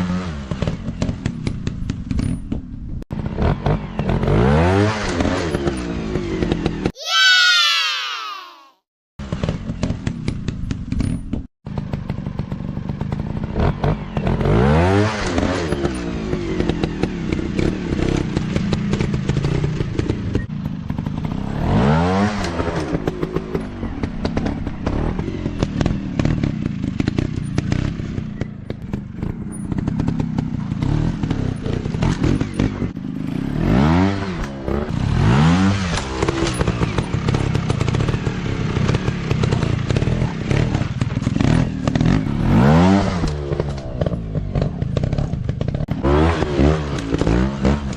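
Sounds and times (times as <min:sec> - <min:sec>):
dirt bike engine revving: 0:03.2 - 0:07.4, 0:13.4 - 0:28.5, 0:29.1 - 0:47.9.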